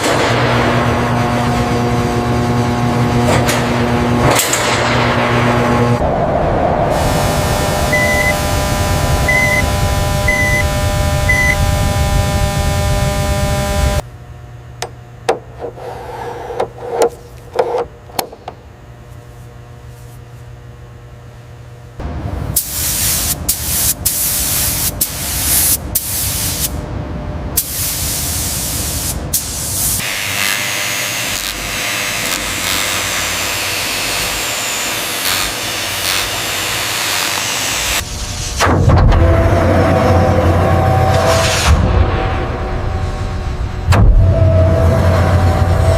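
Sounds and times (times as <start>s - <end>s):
compressed air hissing spray: 22.6s - 26.8s, 27.6s - 30.3s.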